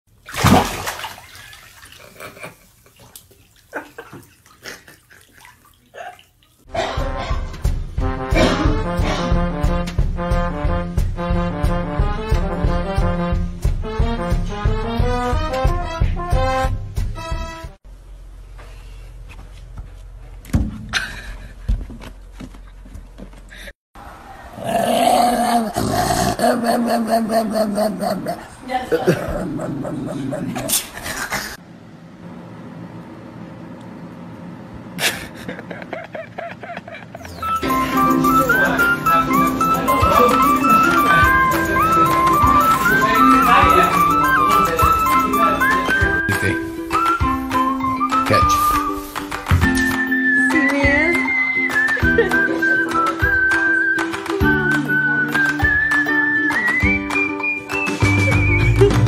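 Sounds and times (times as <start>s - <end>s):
water splashing: 0.1s - 6.7s
swing music with brass: 6.8s - 17.8s, 37.4s - 50.3s.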